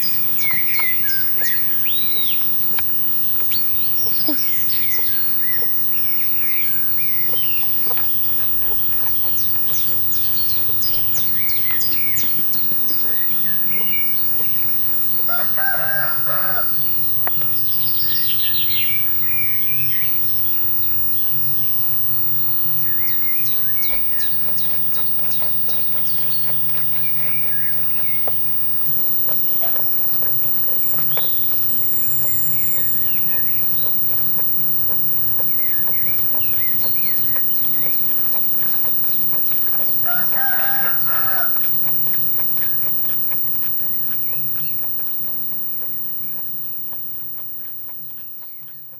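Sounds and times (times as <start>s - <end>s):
birds chirping and trilling: 0.0s - 2.8s, 6.4s - 7.8s, 10.2s - 12.4s, 18.0s - 20.2s
steady low hum: 0.0s - 48.9s
rooster crowing: 15.0s - 17.4s, 39.8s - 42.0s.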